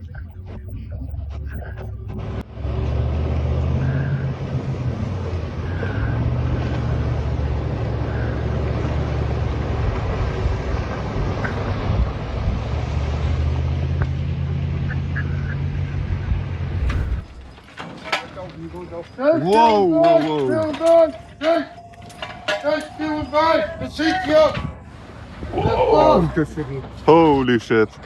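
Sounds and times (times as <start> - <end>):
boat engine droning: 0.0 - 17.7.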